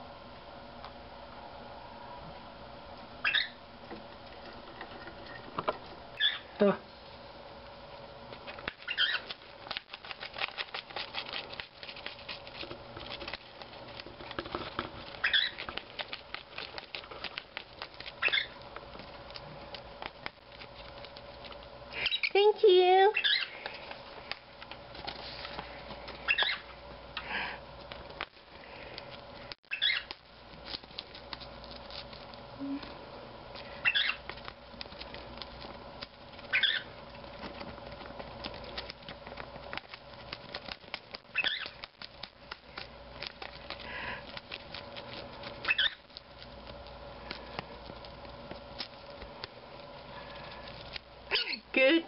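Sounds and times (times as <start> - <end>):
faint steady hum: 0.0 - 52.0
bird chirps: 3.2 - 3.6, 6.2 - 6.5, 15.2 - 15.6, 18.2 - 18.5, 23.2 - 23.5, 26.3 - 26.6, 29.7 - 30.1, 33.8 - 34.2, 36.5 - 36.9
paper rustling: 8.4 - 21.7, 23.6 - 26.3, 27.8 - 32.4
bird beak clicking on paper: 8.5 - 22.3, 28.9 - 32.4, 33.5 - 49.6.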